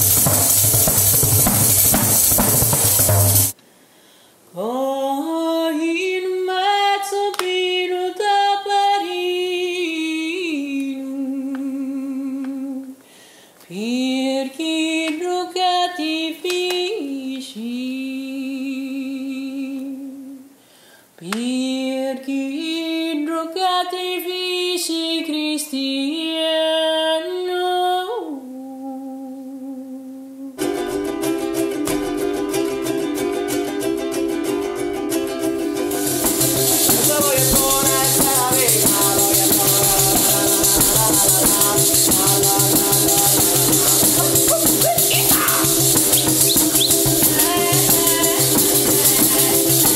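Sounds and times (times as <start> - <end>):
high shaking percussion: 0.0 - 3.6, 30.6 - 49.9
sliding melody: 0.0 - 3.6, 30.6 - 49.9
woman singing unaccompanied: 4.5 - 13.0, 13.7 - 20.6, 21.2 - 30.7, 36.0 - 49.9
plucked strings strummed: 30.6 - 49.9.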